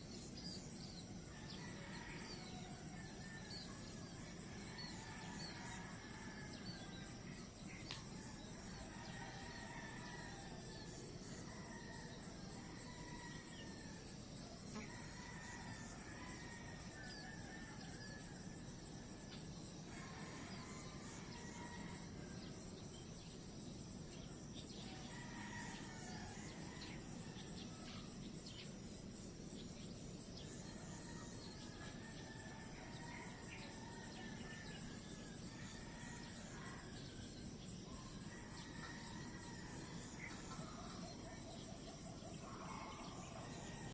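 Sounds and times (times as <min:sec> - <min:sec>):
high insect drone: 0:00.0 - 0:43.9
low background hiss: 0:00.0 - 0:43.9.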